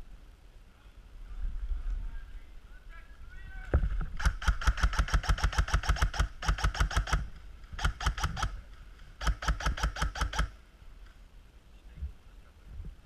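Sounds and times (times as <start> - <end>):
airsoft rifle automatic bursts: 4.2 - 10.6.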